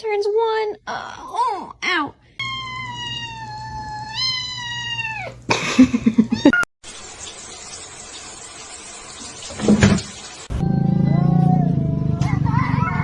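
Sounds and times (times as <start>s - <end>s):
cat yowling: 2.4s - 5.4s, 10.5s - 13.0s.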